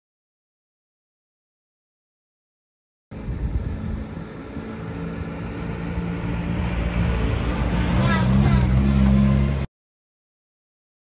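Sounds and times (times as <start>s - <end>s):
vehicle engine low hum: 3.1s - 9.7s.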